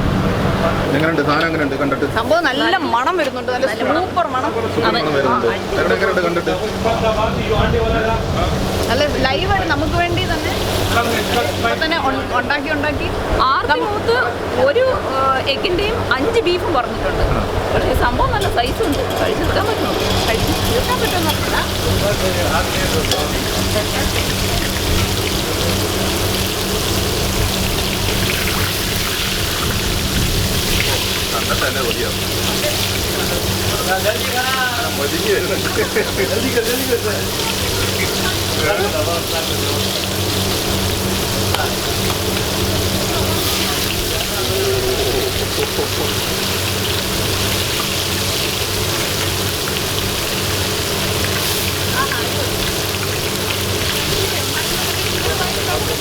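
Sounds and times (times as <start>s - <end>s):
food sizzling in hot oil: 8.6s - 14.8s, 18.1s - 56.0s.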